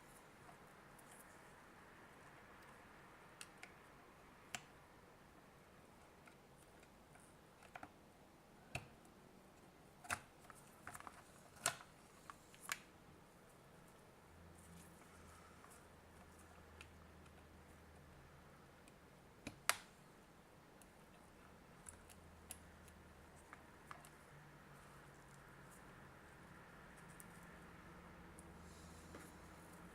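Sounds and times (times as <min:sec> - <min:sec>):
small clicks and taps of parts: 0:02.2 - 0:04.8, 0:06.0 - 0:08.0, 0:14.6 - 0:17.6, 0:18.7 - 0:20.0, 0:20.8 - 0:27.6.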